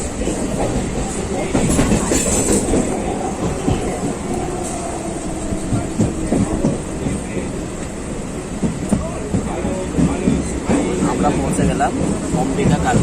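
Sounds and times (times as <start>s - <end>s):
wheels clattering over rails: 0.0s - 4.8s
train rumble from inside coach: 0.0s - 13.0s.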